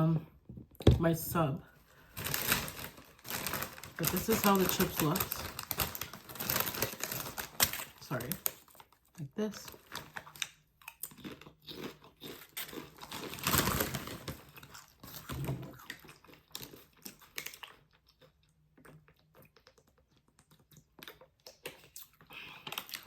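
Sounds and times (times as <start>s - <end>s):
crunching tortilla chips: 2.0s - 23.0s
crinkly chip bag handled: 2.1s - 8.7s, 13.0s - 14.6s.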